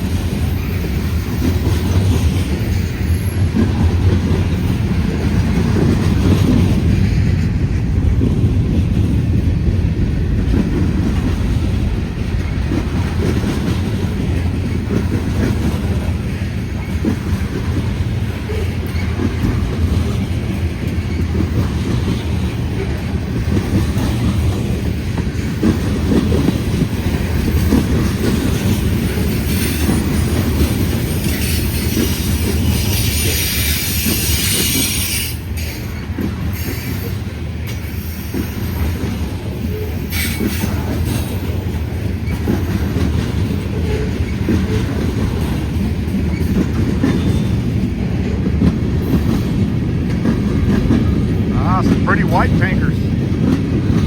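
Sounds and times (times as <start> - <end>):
freight train wheels rumbling: 0.0 - 54.0
train wheels squealing: 2.5 - 3.7, 29.2 - 39.0, 39.6 - 41.3, 46.3 - 47.7.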